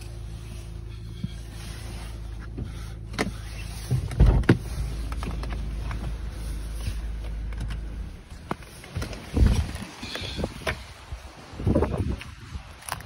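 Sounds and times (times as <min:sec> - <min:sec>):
car engine idling: 0:00.0 - 0:11.6
knocks of person shifting in seat: 0:02.5 - 0:06.3.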